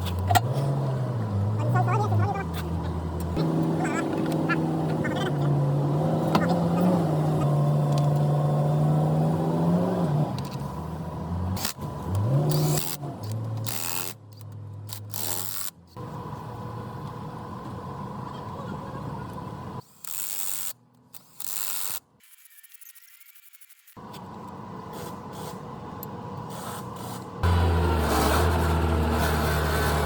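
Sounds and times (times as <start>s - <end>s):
diesel engine running: 0.0s - 13.6s, 27.3s - 30.0s.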